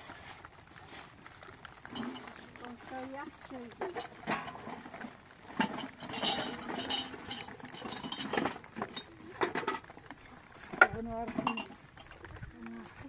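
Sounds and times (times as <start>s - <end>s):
dishes and utensils clinking: 5.6s - 9.8s.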